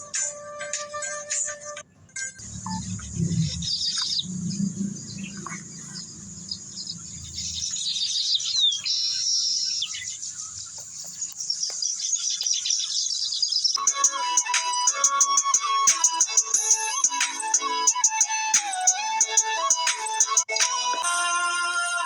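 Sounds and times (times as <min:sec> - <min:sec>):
small birds chirping: 0:01.9 - 0:13.9
low rumbling noise: 0:02.4 - 0:08.5.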